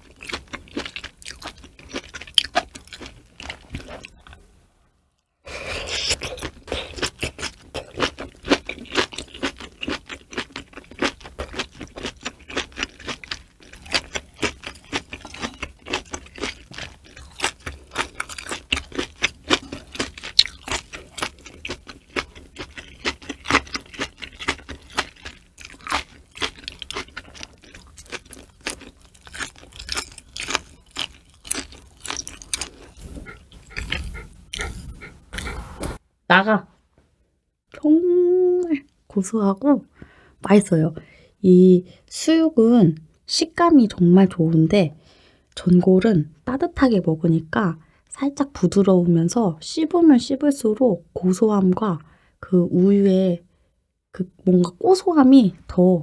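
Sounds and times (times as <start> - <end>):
close chewing with crunches: 0.0 - 4.4, 5.7 - 36.0.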